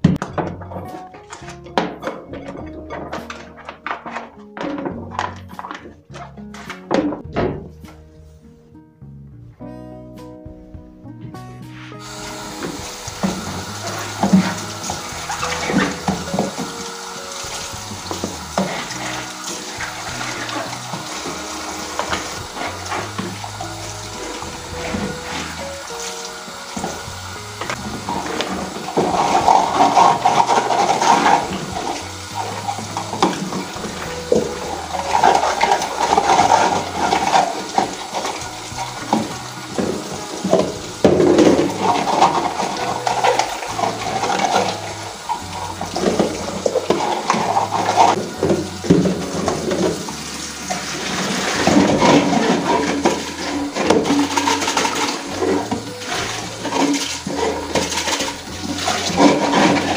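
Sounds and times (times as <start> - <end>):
items knocking in water: 0.0 - 7.8, 12.0 - 59.9
tap water running into sink: 12.0 - 59.9.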